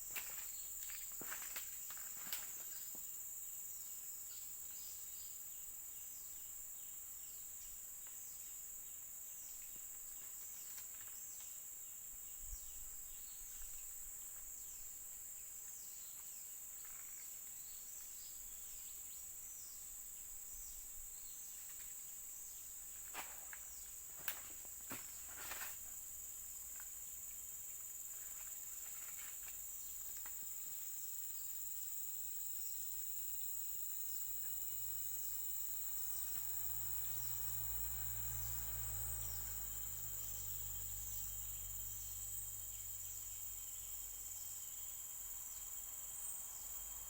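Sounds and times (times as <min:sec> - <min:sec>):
insects droning: 0:00.0 - 0:47.0.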